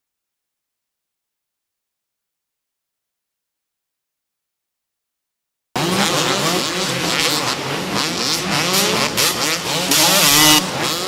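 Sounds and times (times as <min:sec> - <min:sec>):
motorcycle engines revving: 0:05.8 - 0:11.0.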